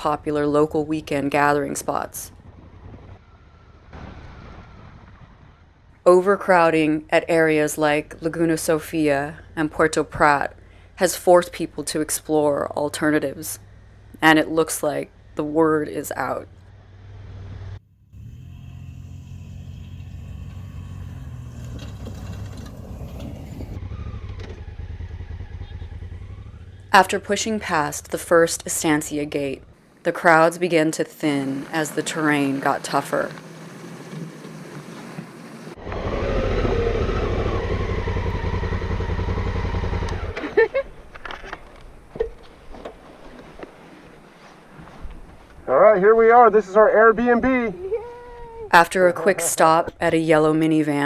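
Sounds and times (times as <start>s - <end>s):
motorcycle engine droning: 7.2s - 29.8s, 30.8s - 43.4s.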